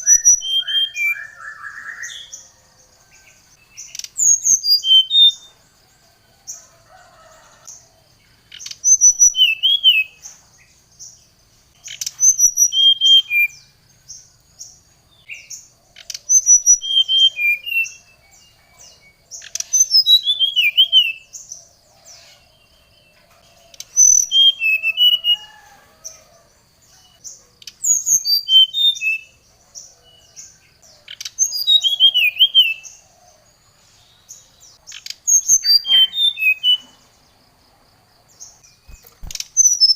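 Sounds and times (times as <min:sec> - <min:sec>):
bird singing whistled trills: 0:00.0 - 0:02.7, 0:03.3 - 0:05.6, 0:08.6 - 0:11.2, 0:11.8 - 0:13.8, 0:14.6 - 0:26.1, 0:27.0 - 0:33.0, 0:34.2 - 0:37.1, 0:38.5 - 0:39.9.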